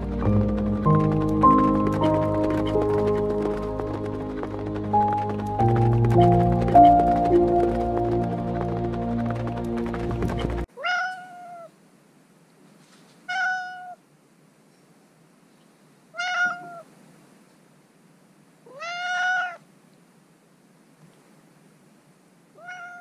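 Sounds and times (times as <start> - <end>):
cat meowing: 10.7 - 11.7, 13.3 - 14.0, 16.1 - 16.9, 18.7 - 19.6, 22.6 - 23.0.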